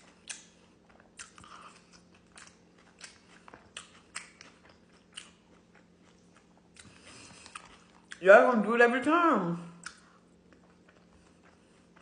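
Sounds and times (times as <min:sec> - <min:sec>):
person chewing crunchy food: 0:00.0 - 0:08.2, 0:09.8 - 0:12.0.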